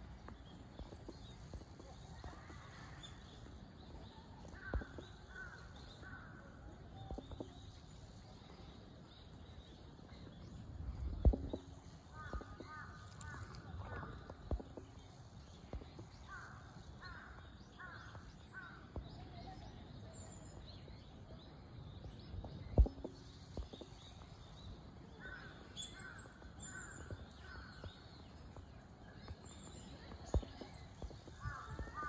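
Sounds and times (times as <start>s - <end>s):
birds repeated falling calls: 0.1s - 32.0s.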